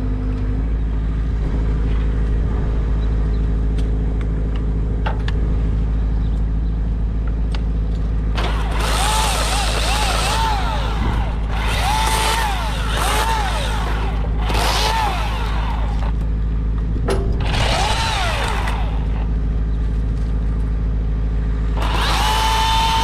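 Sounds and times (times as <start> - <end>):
chainsaw revving: 8.3 - 16.2, 17.4 - 19.4, 21.8 - 23.0
chainsaw engine idling: 8.3 - 23.0.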